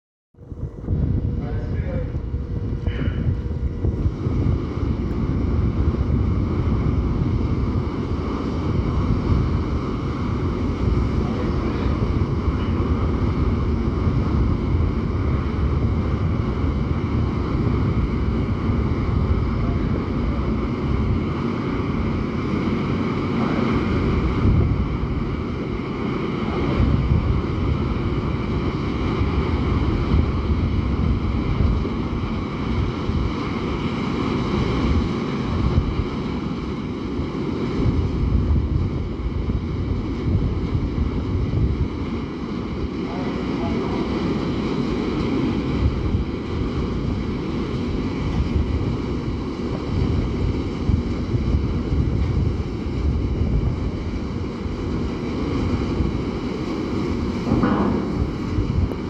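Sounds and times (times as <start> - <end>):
faint whining tones: 0.4 - 6.3
ferry engines rumbling: 0.4 - 32.8, 53.7 - 59.0
wind buffeting microphone: 0.4 - 59.0.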